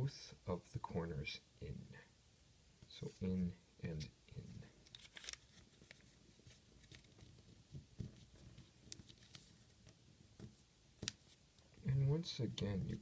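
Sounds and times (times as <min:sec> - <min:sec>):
paper being folded and creased: 0:04.8 - 0:11.4.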